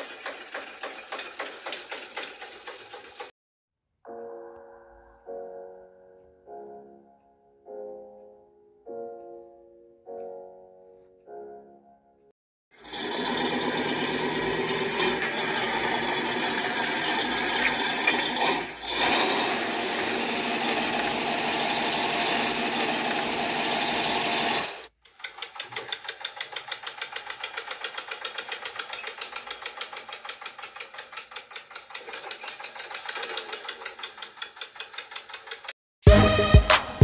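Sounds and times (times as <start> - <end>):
small electric motor whirring: 12.8 - 24.9.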